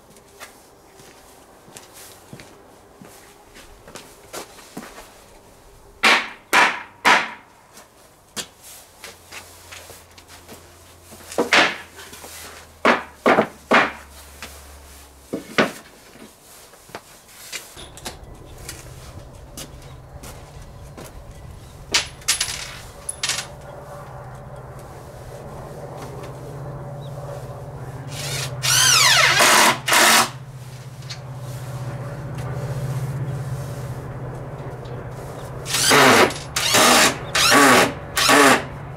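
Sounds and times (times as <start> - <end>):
hard strikes on wood: 6.0 - 7.5.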